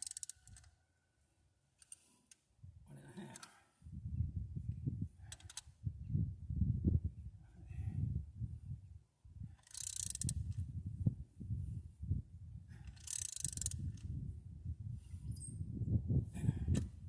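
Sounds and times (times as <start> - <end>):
ratchet wrench clicking: 0.0 - 0.7, 9.6 - 10.6, 12.9 - 14.1.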